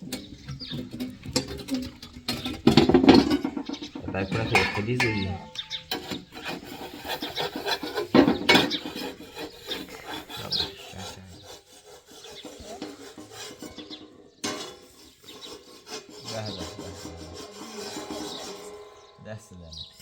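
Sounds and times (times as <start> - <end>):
sharp knocks: 0.2 - 6.9
scraping and rubbing strokes: 0.3 - 20.0.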